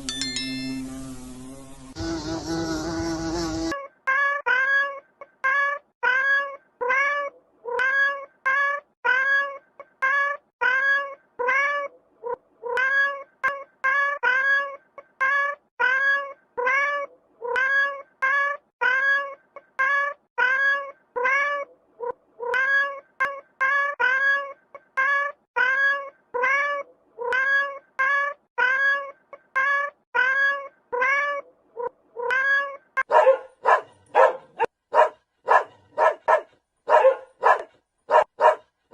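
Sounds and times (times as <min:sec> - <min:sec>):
cat meowing: 0:03.7 - 0:12.0, 0:12.7 - 0:32.9
sharp barks: 0:33.0 - 0:38.7.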